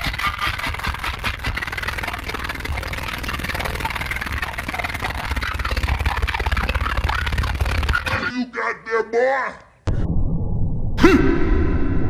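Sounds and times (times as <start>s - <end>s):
buzzing haze: 0.0s - 8.1s.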